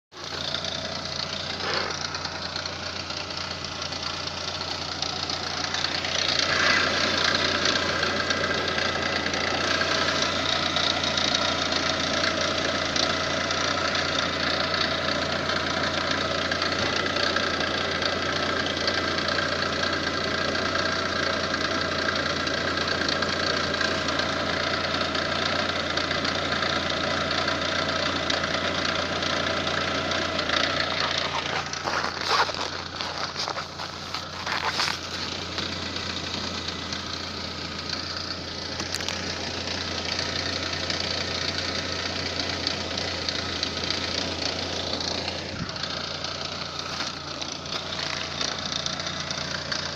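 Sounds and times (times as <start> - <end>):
car gearbox hum and whine: 0.1 - 49.9.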